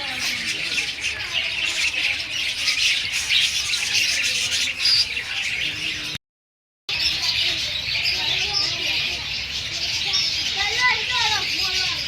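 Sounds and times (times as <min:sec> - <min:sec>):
small birds chirping and chattering: 0:00.0 - 0:06.2, 0:06.9 - 0:12.0.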